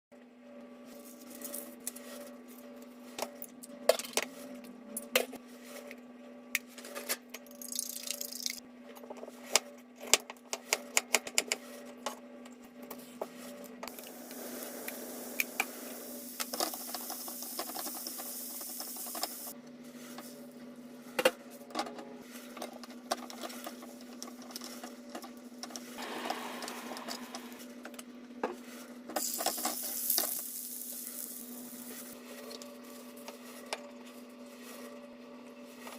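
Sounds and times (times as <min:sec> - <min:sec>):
steady low hum: 0:11.5 - 0:35.9.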